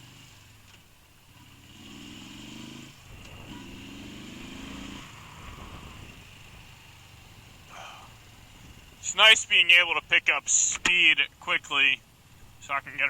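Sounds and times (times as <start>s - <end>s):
dirt bike engine revving: 0.0s - 0.6s, 1.2s - 10.8s.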